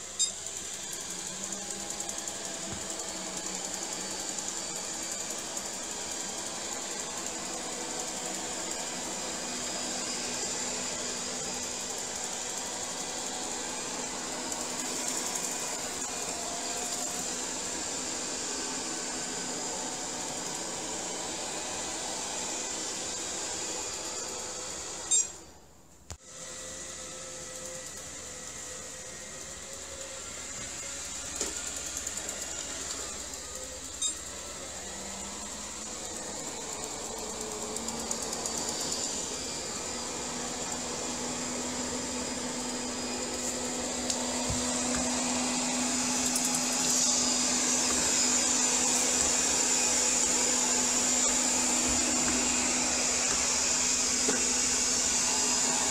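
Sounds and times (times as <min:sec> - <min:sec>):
vacuum mop motor whine: 0:00.0 - 0:55.9.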